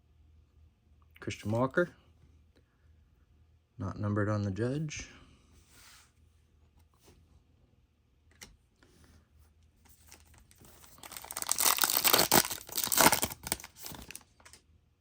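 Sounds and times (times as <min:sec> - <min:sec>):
wrapper tearing and crinkling: 0:10.1 - 0:14.6.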